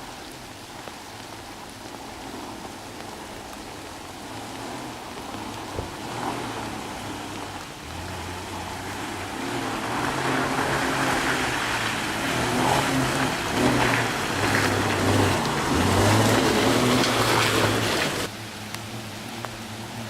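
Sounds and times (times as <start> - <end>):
car engine climbing hill: 0.0 - 20.0.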